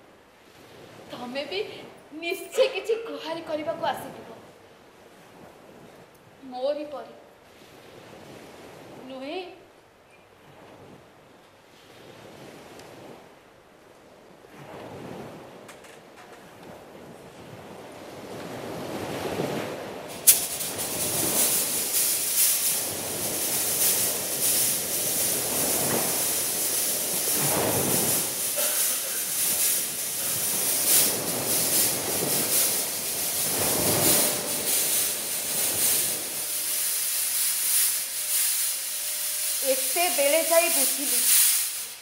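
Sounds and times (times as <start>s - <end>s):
fog machine hissing: 20.1s - 42.0s
gusty whooshes: 29.2s - 37.1s.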